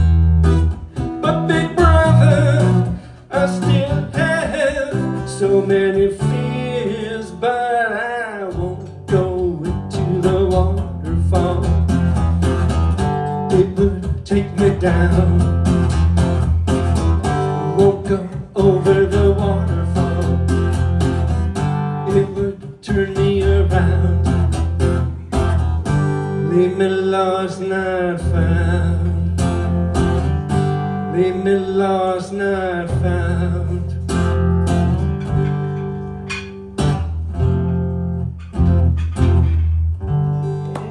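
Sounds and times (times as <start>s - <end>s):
acoustic guitar strumming: 0.0s - 40.9s.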